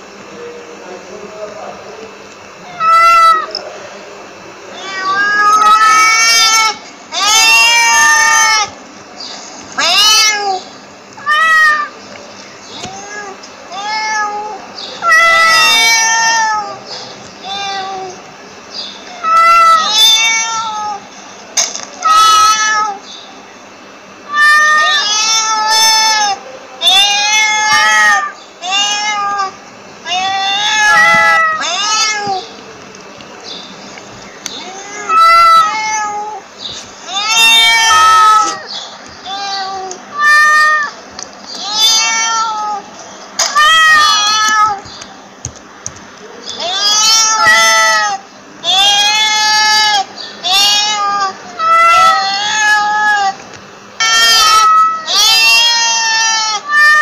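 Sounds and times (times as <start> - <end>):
cat meowing: 2.6 - 3.6, 4.7 - 8.8, 9.8 - 12.0, 12.7 - 18.2, 19.0 - 21.1, 22.0 - 23.1, 24.3 - 32.6, 34.5 - 36.4, 37.1 - 41.0, 41.6 - 45.0, 46.6 - 53.4, 54.0 - 57.0.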